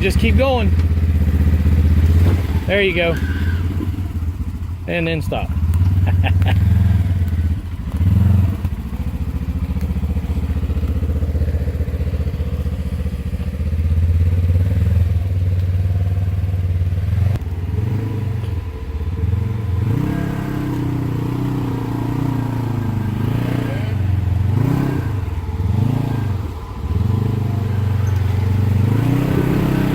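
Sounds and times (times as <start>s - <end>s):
off-road vehicle engine revving: 0.0s - 29.9s.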